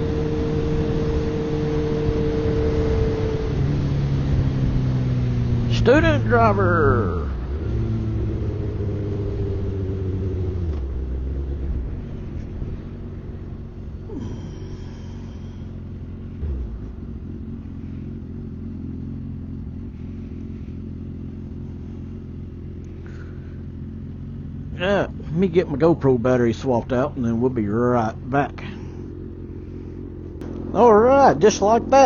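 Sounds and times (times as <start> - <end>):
motorcycle engine idling: 0.0 - 32.0.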